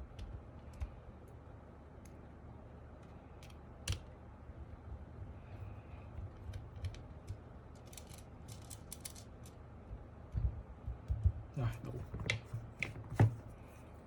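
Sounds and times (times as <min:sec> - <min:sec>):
plastic keyboard parts clicking: 0:00.0 - 0:00.9, 0:03.4 - 0:04.1, 0:06.2 - 0:09.2.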